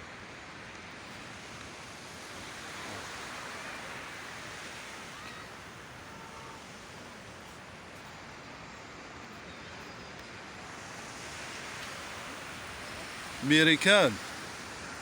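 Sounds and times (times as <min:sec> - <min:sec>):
sea waves washing: 0:10.7 - 0:15.0.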